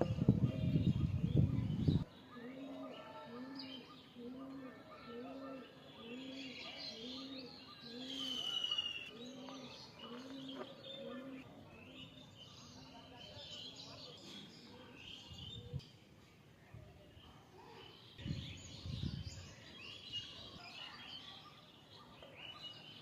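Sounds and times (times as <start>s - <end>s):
birds chirping and whistling: 3.6s - 12.7s.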